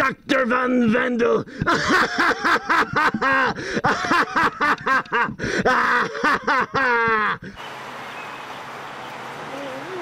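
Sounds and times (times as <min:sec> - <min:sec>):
man laughing villainously: 0:01.4 - 0:07.5.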